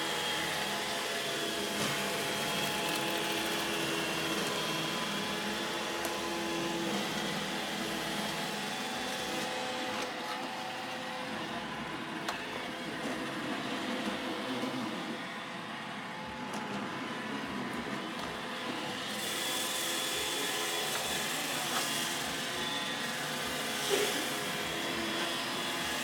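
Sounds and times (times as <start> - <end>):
robot vacuum whirring: 0.0 - 26.0.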